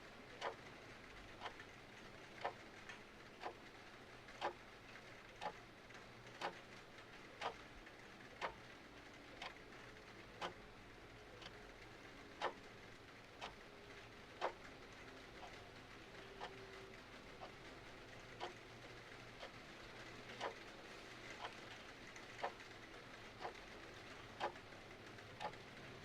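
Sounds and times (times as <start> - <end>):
faint rain hiss: 0.0 - 26.0
clock ticking: 0.3 - 0.7, 1.3 - 4.6, 5.3 - 5.6, 6.3 - 7.8, 8.4 - 8.7, 9.4 - 10.7, 11.3 - 12.7, 13.3 - 26.0.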